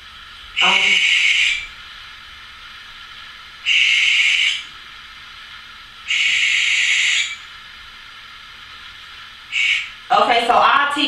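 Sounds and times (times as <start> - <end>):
owl hissing screeches: 0.6 - 1.8, 3.6 - 4.7, 6.1 - 7.5, 9.5 - 10.0.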